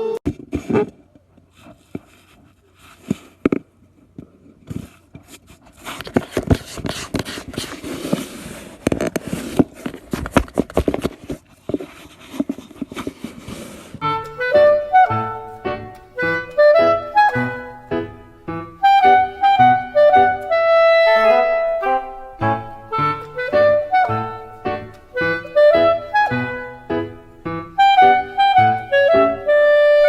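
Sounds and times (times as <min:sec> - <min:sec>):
scraping and rustling: 0:00.3 - 0:17.7.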